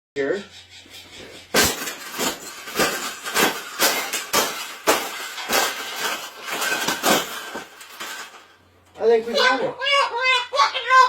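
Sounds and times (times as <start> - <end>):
banging strikes with rattling: 1.1 - 8.6.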